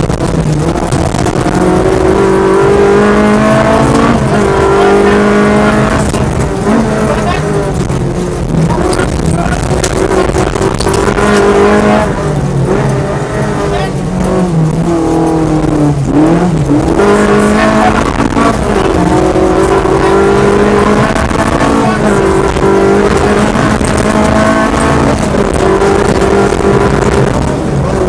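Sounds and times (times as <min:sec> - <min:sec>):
rally car engine revving: 0:00.0 - 0:28.0
tyres rumbling on gravel: 0:00.0 - 0:28.0.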